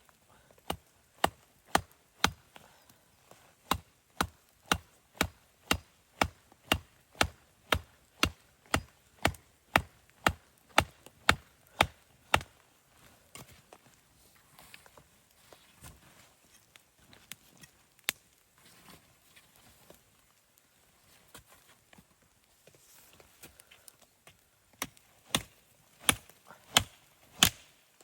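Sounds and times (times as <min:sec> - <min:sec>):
wood being chopped: 0:00.6 - 0:02.5, 0:03.6 - 0:12.5, 0:24.8 - 0:27.7.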